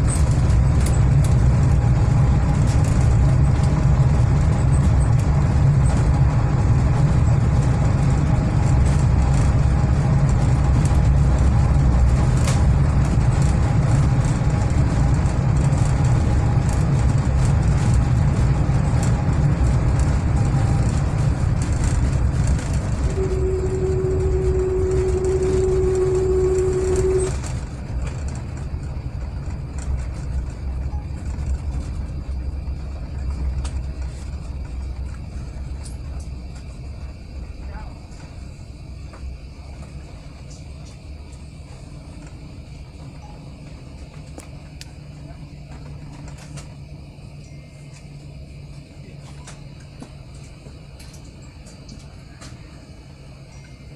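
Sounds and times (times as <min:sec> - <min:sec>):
airplane cabin rumble: 0:00.0 - 0:53.9
steady tone: 0:23.0 - 0:27.6.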